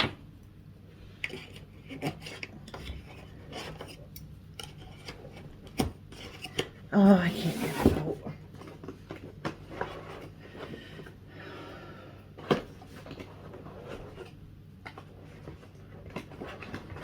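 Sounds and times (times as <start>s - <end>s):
cardboard rustling: 12.4s - 17.0s.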